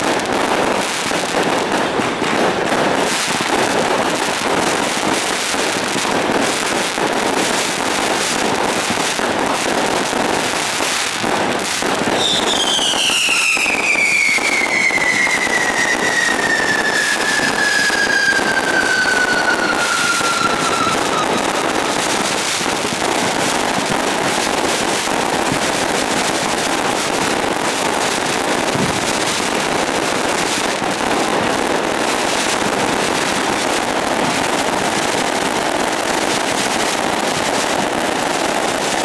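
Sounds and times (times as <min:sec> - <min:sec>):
firecrackers crackling: 0:00.0 - 0:39.0
high falling whistle: 0:12.2 - 0:23.3.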